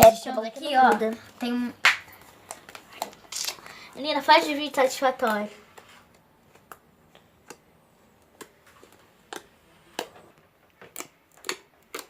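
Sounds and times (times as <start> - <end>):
slime squishing with sticky clicks: 6.1 - 12.0.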